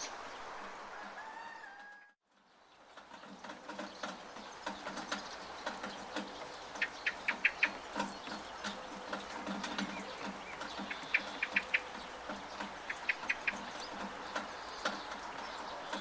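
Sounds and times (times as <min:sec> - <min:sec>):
steady rain hiss: 0:00.0 - 0:16.0
rain dripping from gutter: 0:02.6 - 0:16.0.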